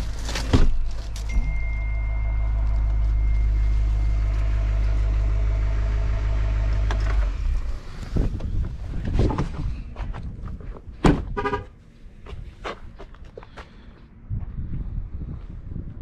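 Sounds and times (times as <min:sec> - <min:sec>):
truck engine idling: 0:00.0 - 0:09.1.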